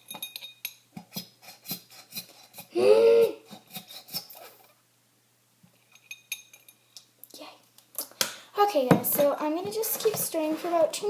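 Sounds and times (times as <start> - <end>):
spoon scraping and tapping cup: 0.0 - 2.7.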